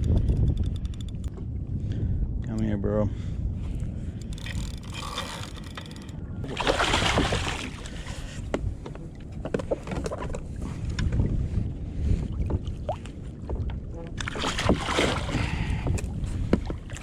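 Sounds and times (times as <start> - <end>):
wind and water rumble: 0.0 - 17.0
fish splashing and thrashing: 4.2 - 8.4, 14.2 - 15.7.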